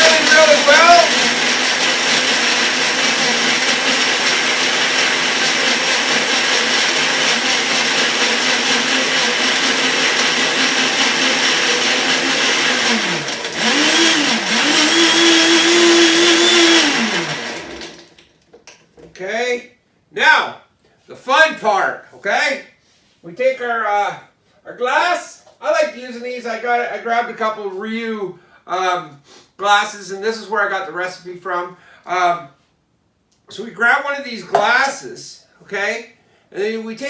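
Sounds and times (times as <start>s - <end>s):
blender running: 0.0s - 18.2s.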